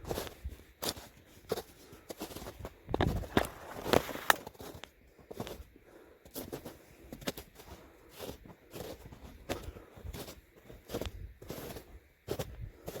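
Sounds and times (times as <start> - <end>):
footsteps: 0.0 - 5.6.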